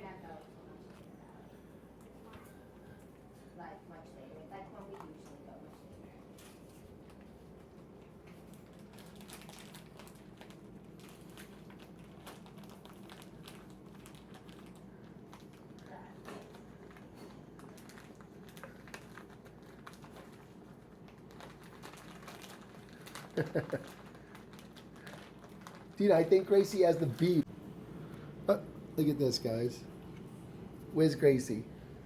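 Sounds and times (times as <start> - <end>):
steady low hum: 24.1 - 32.0.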